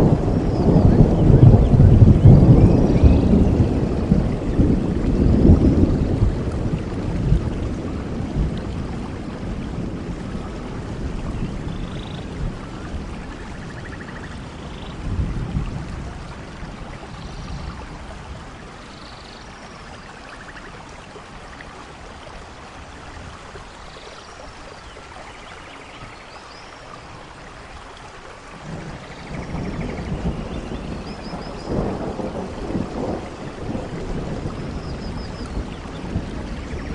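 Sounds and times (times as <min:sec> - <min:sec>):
low rolls of thunder: 0:00.0 - 0:18.9, 0:28.5 - 0:36.9
steady rainfall hiss: 0:00.0 - 0:36.9.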